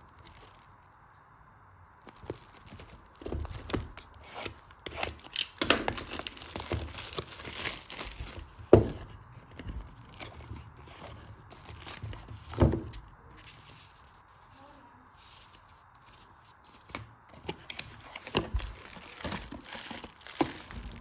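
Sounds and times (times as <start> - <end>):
wrapping crinkling and tearing: 0.0 - 1.0, 2.0 - 8.6, 9.4 - 12.4, 13.4 - 21.0
small clicks and rustles: 0.0 - 1.2.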